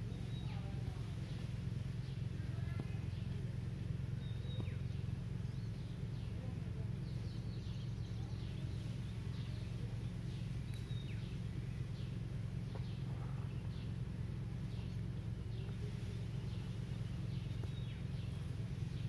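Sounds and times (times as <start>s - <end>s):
small birds chirping: 0.0s - 19.0s
steady low hum: 0.0s - 19.0s.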